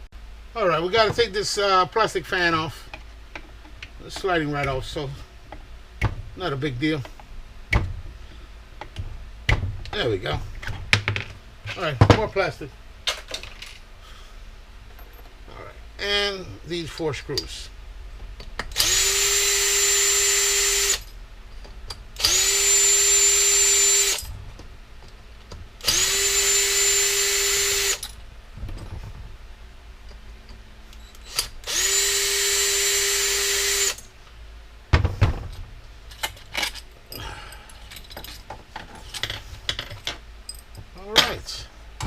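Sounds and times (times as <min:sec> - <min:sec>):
loose parts knocking and rattling: 0:07.0 - 0:08.1, 0:08.8 - 0:12.4, 0:13.0 - 0:13.9, 0:28.0 - 0:29.4, 0:34.9 - 0:42.0
power drill motor whine: 0:18.8 - 0:21.1, 0:22.2 - 0:24.2, 0:25.8 - 0:28.0, 0:31.0 - 0:34.0.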